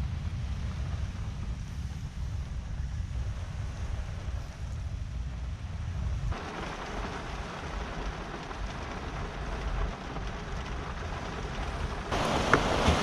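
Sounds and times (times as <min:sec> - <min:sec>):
wind rumble on microphone: 0:00.0 - 0:13.0
heavy rain falling: 0:06.3 - 0:13.0.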